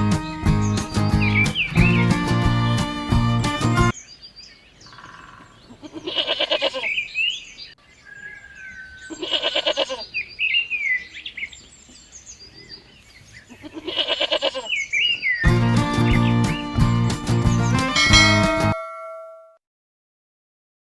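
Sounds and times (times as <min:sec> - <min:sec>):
goat bleating: 0:13.6 - 0:14.7.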